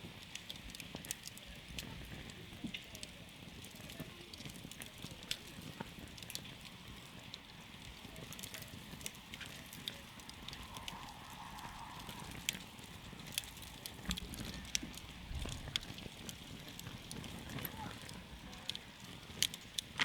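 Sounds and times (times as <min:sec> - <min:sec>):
campfire crackling and popping: 0:00.0 - 0:20.0
low rush of flames: 0:00.0 - 0:20.0.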